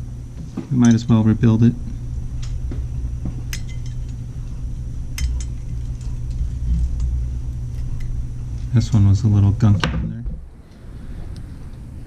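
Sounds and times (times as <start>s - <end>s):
low hum: 0.0s - 12.0s
metal tools clinking: 3.5s - 7.1s.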